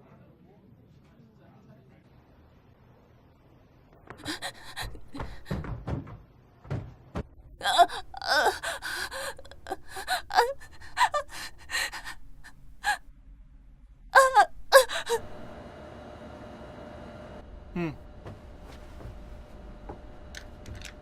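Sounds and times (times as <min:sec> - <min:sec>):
person gasping and panting: 0:04.2 - 0:05.6, 0:07.6 - 0:13.1, 0:14.2 - 0:15.3
strained voiced cry: 0:14.2 - 0:15.2.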